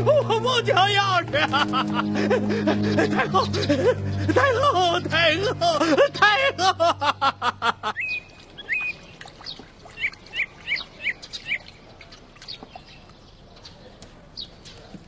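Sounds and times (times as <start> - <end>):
small birds chirping: 7.8 - 15.0.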